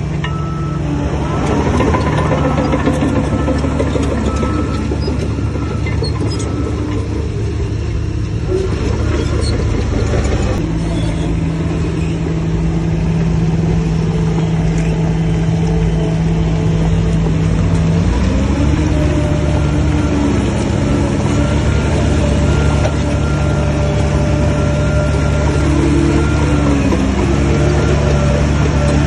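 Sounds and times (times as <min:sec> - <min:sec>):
heavy diesel engine running: 0:00.0 - 0:29.0.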